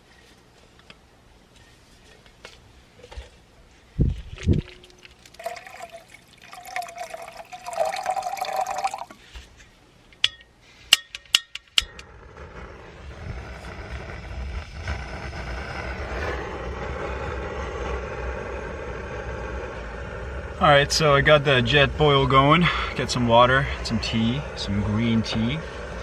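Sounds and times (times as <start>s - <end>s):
water pouring into cup: 4.4s - 9.2s
igniter clicks: 10.1s - 12.1s
gas burner hissing: 10.2s - 26.0s.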